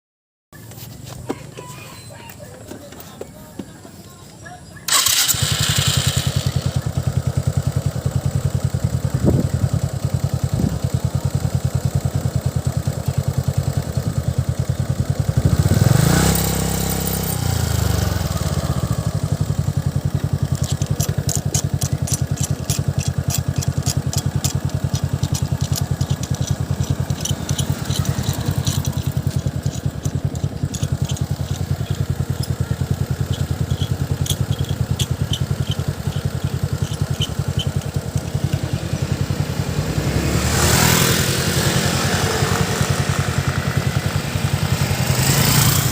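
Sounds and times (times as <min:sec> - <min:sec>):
motorcycle engine idling and revving: 0:00.6 - 0:45.9
fast high clicking: 0:19.8 - 0:39.0.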